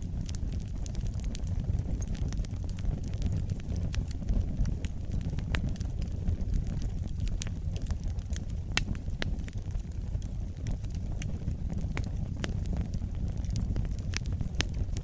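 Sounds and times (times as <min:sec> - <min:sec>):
fire popping: 0:00.0 - 0:15.0
wood fire crackling: 0:00.0 - 0:15.0.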